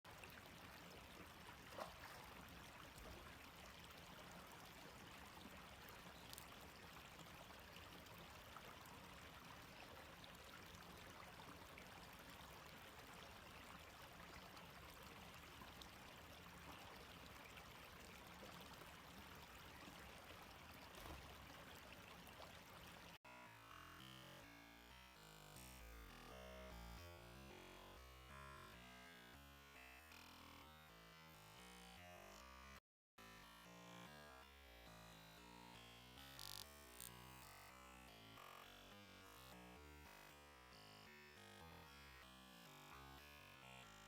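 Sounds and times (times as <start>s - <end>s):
flowing stream water: 0.1s - 44.0s.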